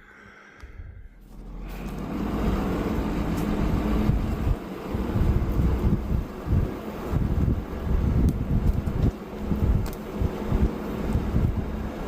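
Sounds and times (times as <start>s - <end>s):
wind gusting over microphone: 2.8s - 12.0s.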